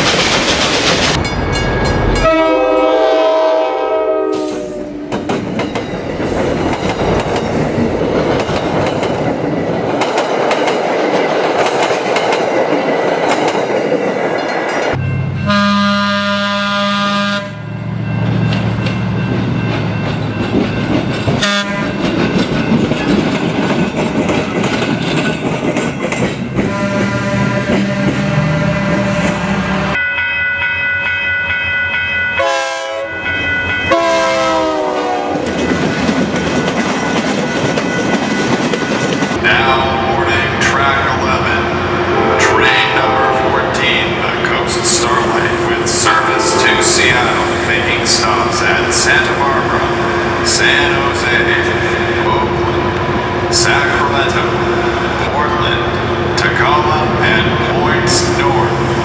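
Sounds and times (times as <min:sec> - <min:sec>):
train rumbling over rails: 0:00.0 - 0:30.0, 0:32.5 - 0:59.0
train horn blasts: 0:02.1 - 0:05.5, 0:15.0 - 0:17.9, 0:21.4 - 0:22.0, 0:26.6 - 0:30.0, 0:32.4 - 0:33.2, 0:33.9 - 0:35.5, 0:39.4 - 0:41.0, 0:41.6 - 0:45.0, 0:45.7 - 0:48.4, 0:49.7 - 0:51.1.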